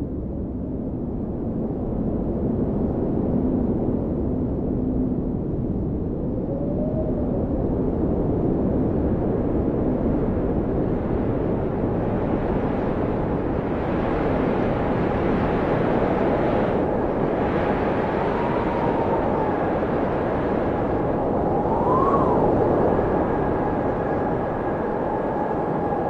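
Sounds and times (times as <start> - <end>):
blizzard wind rumbling: 0.0 - 26.0
faint whistling howl: 6.3 - 7.9, 17.7 - 26.0.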